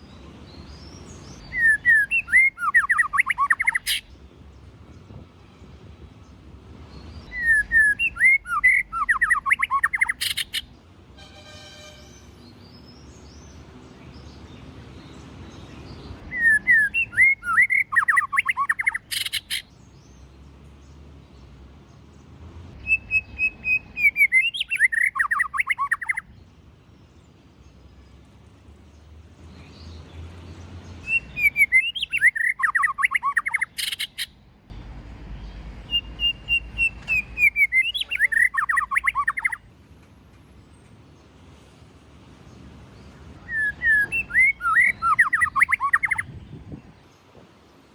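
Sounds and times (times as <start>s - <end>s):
bird singing whistled phrases: 1.4s - 4.0s, 7.3s - 10.7s, 16.3s - 19.6s, 22.8s - 26.3s, 31.0s - 34.3s, 35.9s - 39.6s, 43.4s - 46.3s.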